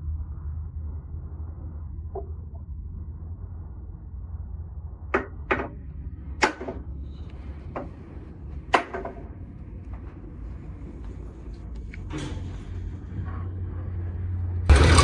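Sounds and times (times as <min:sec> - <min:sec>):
low hum: 0:12.9 - 0:15.0.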